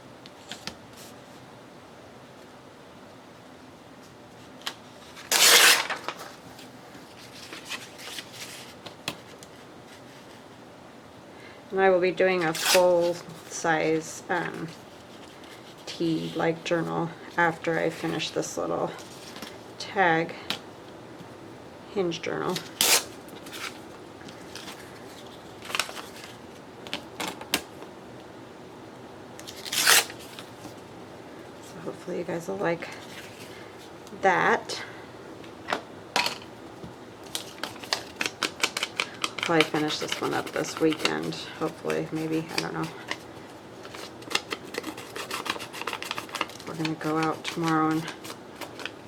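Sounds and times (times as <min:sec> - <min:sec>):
paper rustling: 0:04.4 - 0:10.6, 0:14.3 - 0:19.6, 0:22.5 - 0:27.8, 0:37.2 - 0:49.0
paper rasping: 0:37.6 - 0:43.2, 0:43.8 - 0:48.9.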